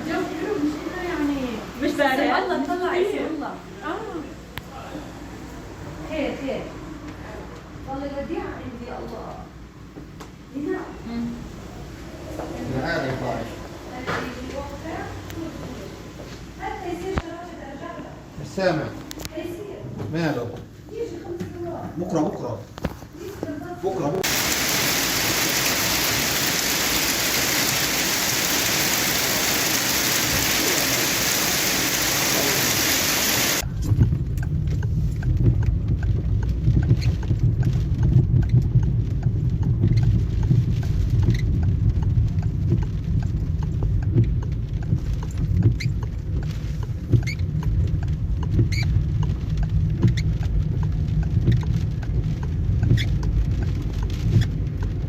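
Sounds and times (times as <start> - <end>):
heavy rain hissing: 24.2 - 33.6
drops or hailstones ticking: 24.2 - 33.7, 34.3 - 55.0.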